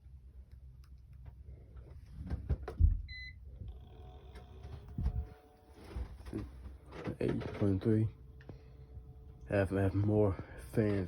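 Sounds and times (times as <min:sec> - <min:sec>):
knocks and thump: 0:02.2 - 0:03.1
electric fan motor whine: 0:02.6 - 0:11.0.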